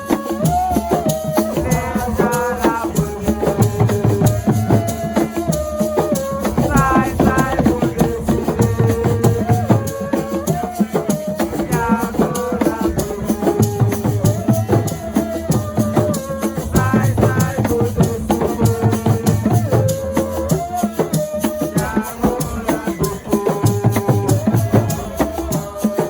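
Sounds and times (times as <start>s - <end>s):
low drum beats: 6.5s - 9.9s.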